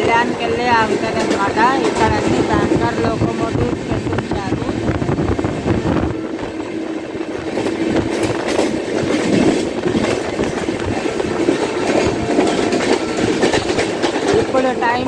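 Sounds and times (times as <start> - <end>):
wheels clacking over rail joints: 0.0 - 4.1, 7.0 - 15.0
train passing alongside: 0.0 - 15.0
wheel and rail rushing: 0.0 - 15.0.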